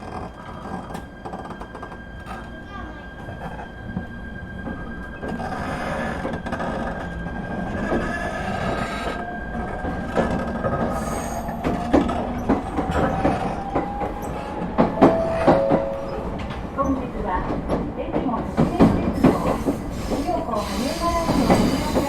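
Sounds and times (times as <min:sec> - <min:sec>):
train rumble: 0:00.0 - 0:22.0.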